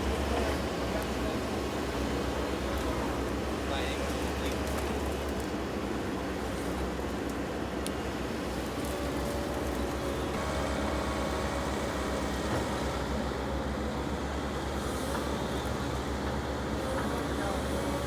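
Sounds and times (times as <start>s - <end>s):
heavy equipment engine running: 8.9s - 18.0s.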